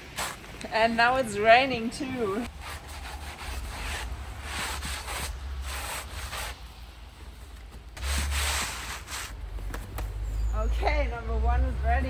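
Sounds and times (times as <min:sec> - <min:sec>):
snow scraped off wooden board: 0:02.5 - 0:06.6, 0:08.0 - 0:09.4.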